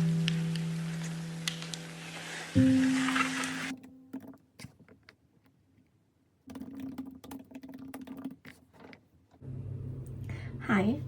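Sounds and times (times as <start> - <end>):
low steady hum: 9.4 - 11.0.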